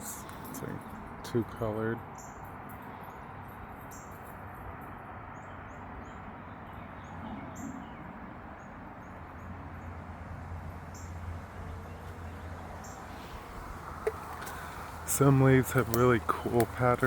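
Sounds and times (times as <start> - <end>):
steady outdoor hiss: 0.0 - 17.0
small birds chirping: 10.9 - 17.0.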